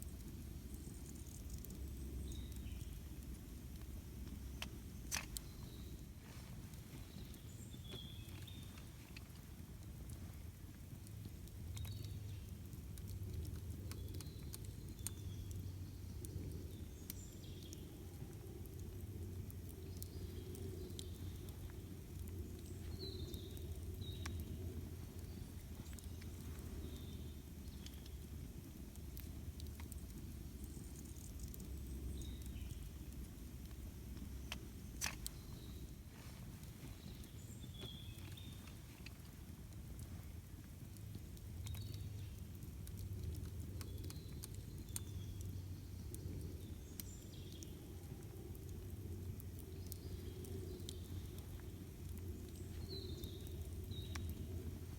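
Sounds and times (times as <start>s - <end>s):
campfire crackling: 0.0s - 54.9s
bird chirping: 4.3s - 9.2s, 22.5s - 28.2s.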